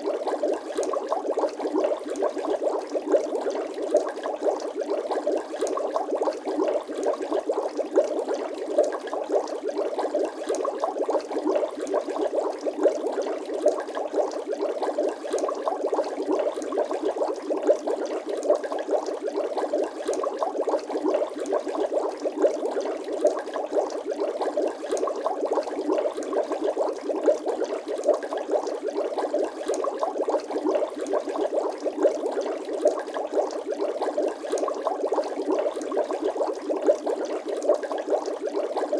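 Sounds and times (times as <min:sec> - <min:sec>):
water bubbling and gurgling: 0:00.0 - 0:38.9.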